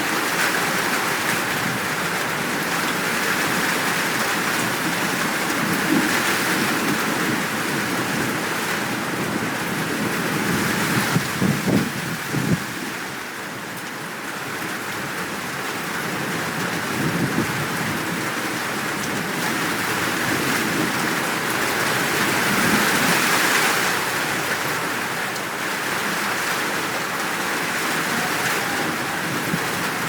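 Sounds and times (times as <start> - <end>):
heavy rain: 0.0 - 30.0
distant thunder rumbles: 26.1 - 30.0.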